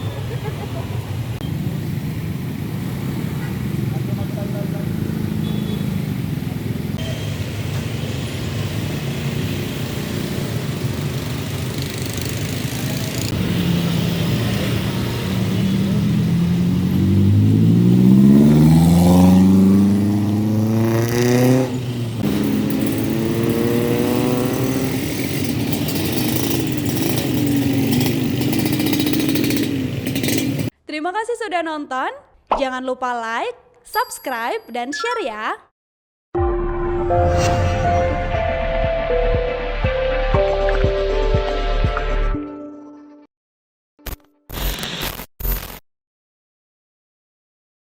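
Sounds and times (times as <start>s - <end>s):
vehicle engines running: 0.0s - 30.7s
vehicle accelerating: 8.7s - 30.7s.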